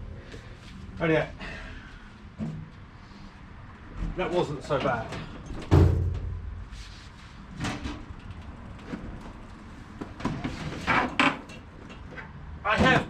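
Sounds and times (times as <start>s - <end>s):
heavy deep thud: 5.7s - 6.7s.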